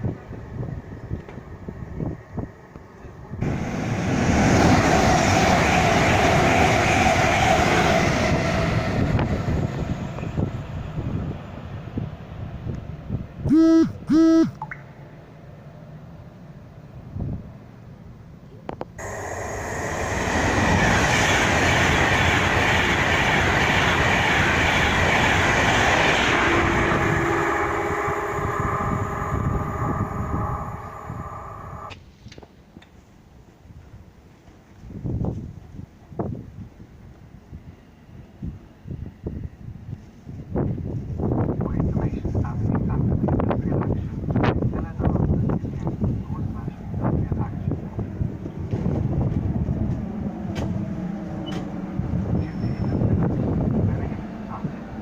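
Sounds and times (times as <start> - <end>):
train rumbling by: 0.0 - 13.4, 15.5 - 32.0, 33.4 - 55.0
high whining tones: 19.0 - 31.9.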